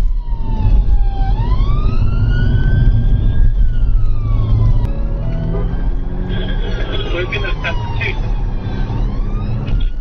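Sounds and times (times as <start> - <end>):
car engine rumble and road noise: 0.0 - 10.0
police siren wailing: 0.0 - 10.0.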